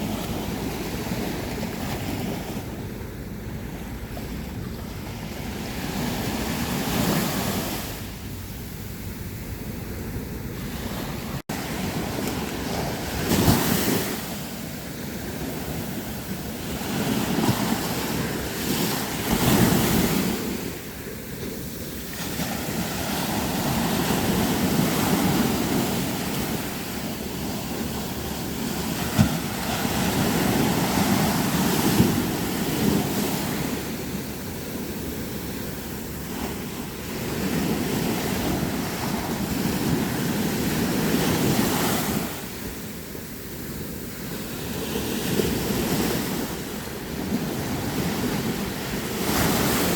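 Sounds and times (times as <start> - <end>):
sea waves breaking on beach: 10.1 - 49.9.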